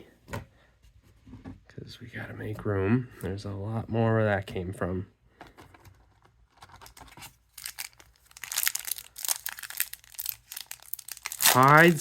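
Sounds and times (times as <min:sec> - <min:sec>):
plastic wrapper tearing and crinkling: 0:06.7 - 0:12.0.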